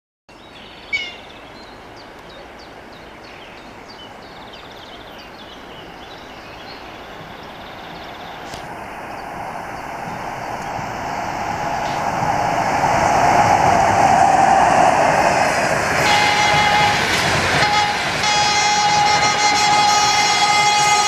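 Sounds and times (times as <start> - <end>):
birds chirping: 0.3 - 12.6
train rumble approaching: 2.7 - 21.0.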